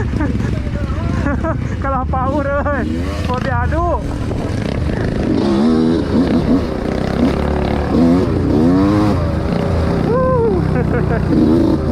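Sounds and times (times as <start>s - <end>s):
dirt bike engine revving: 0.0s - 11.9s.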